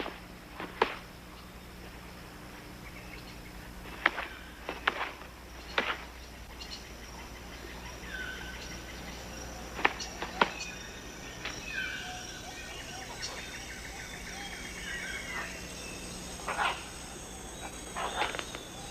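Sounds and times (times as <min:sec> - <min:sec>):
insects buzzing: 0:00.0 - 0:18.9
bird chirps: 0:05.6 - 0:18.9.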